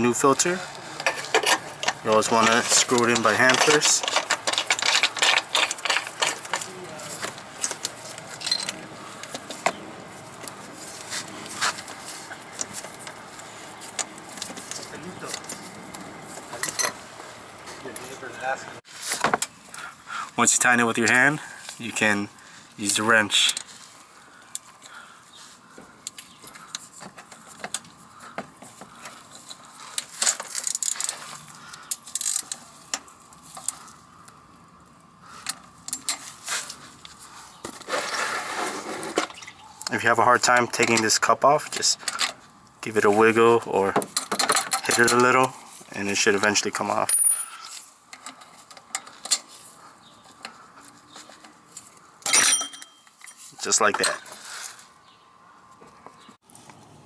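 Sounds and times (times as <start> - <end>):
oil filter screwed in by hand: 0.9 - 6.7.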